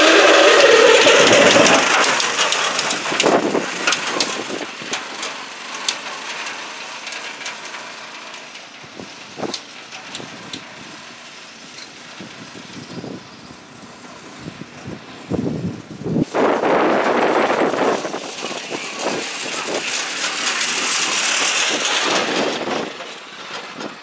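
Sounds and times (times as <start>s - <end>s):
sharp clicks and clanks: 0.0s - 8.8s
small engine running: 0.0s - 24.0s.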